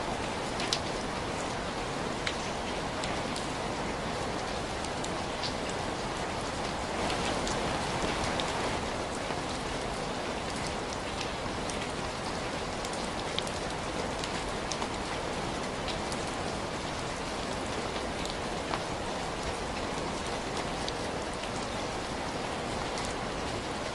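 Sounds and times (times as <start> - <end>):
sharp ticks of raindrops: 0.0 - 23.9
steady rain falling: 0.0 - 23.9.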